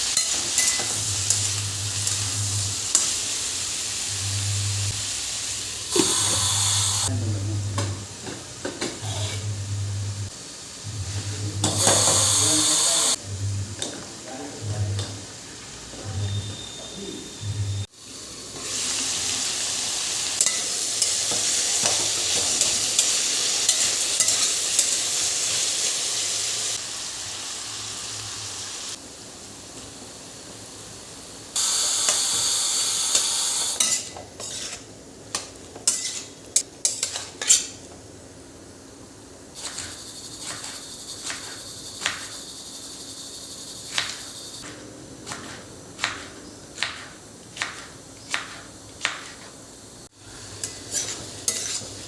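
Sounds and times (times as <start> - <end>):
food sizzling in a pan: 0.0 - 7.1, 7.7 - 52.0
spatula scraping a pan: 33.8 - 34.9, 35.8 - 37.8, 50.6 - 52.0.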